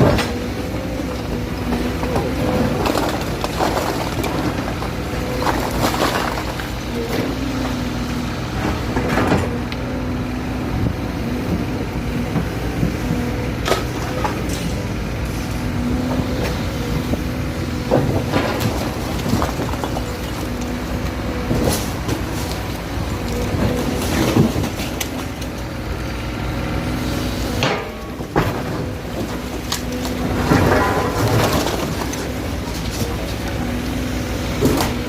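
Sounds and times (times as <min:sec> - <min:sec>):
diesel engine humming: 0:00.0 - 0:35.0
knocks and clatter: 0:27.6 - 0:33.2.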